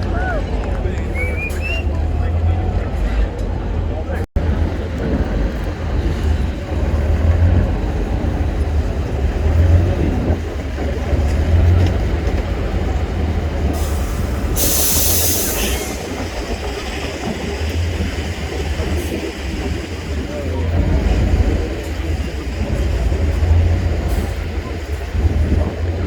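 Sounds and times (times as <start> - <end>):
diesel truck engine rumbling: 0.0 - 26.0
burst of hiss: 13.8 - 16.1.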